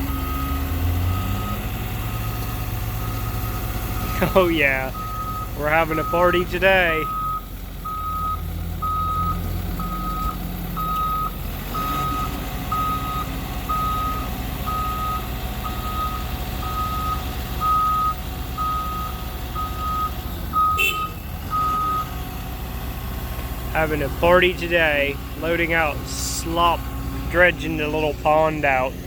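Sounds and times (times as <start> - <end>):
diesel engine running: 0.0 - 29.0
backup alarm beeping: 3.0 - 22.1.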